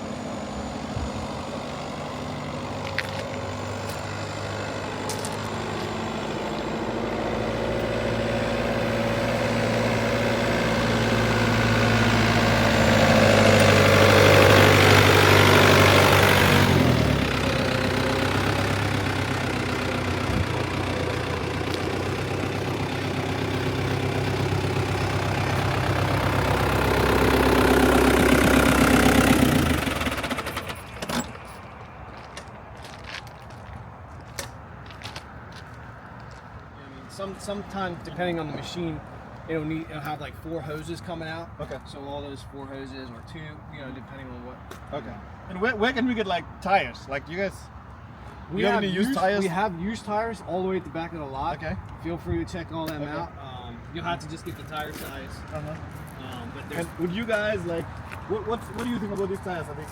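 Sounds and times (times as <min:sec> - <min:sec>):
tractor engine running: 0:00.0 - 0:32.7.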